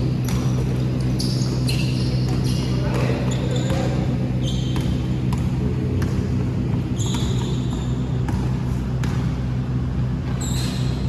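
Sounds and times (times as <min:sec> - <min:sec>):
basketball bouncing on hard court: 0:00.0 - 0:09.4
steady low hum: 0:00.0 - 0:11.0
sneaker squeaks: 0:00.1 - 0:09.4, 0:10.2 - 0:11.0.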